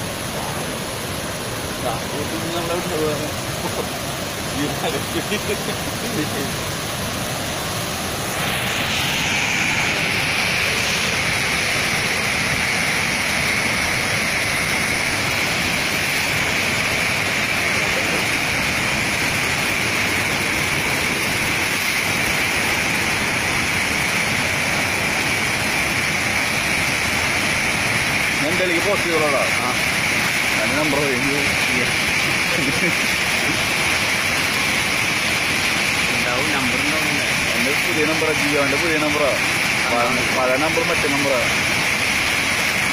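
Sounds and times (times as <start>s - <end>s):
floodwater rushing roar: 0.0s - 42.9s.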